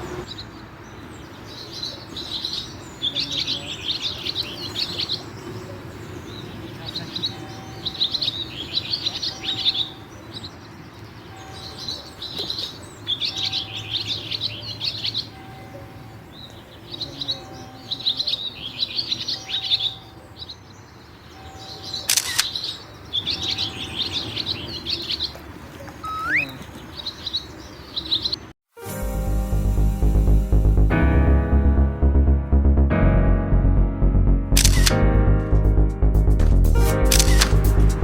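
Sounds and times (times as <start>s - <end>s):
birds singing: 0.0s - 28.5s
sharp click: 34.6s - 35.0s, 37.1s - 37.8s.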